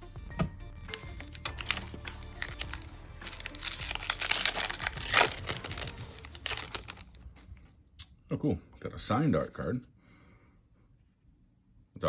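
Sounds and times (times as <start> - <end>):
foil wrapper crinkling: 0.9 - 7.5
sharp foil rip: 1.2 - 7.1.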